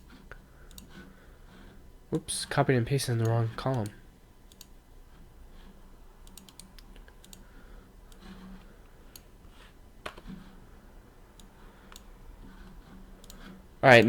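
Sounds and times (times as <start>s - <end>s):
computer mouse and keyboard clicks: 0.1s - 1.1s, 4.5s - 4.7s, 6.2s - 7.5s, 8.1s - 10.6s, 11.4s - 13.6s.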